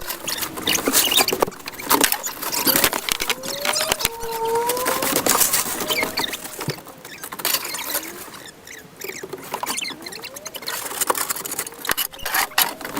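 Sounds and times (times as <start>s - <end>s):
snow scraping sped up: 0.0s - 6.8s
squeaky glides: 0.0s - 12.9s.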